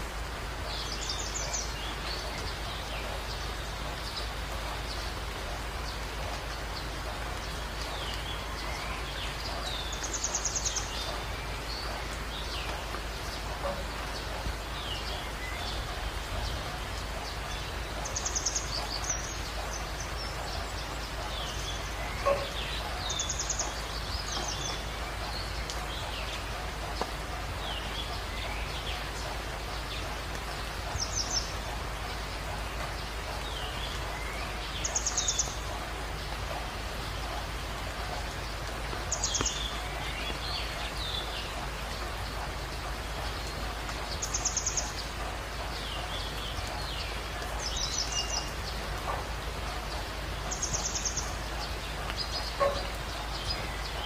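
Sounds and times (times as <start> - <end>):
birds chirping: 0.0 - 54.0
steady background hiss: 0.0 - 54.0.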